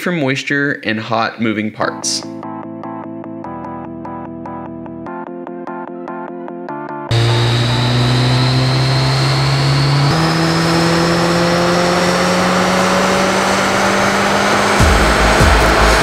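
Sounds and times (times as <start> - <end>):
turbocharged engine under load: 7.1 - 16.0.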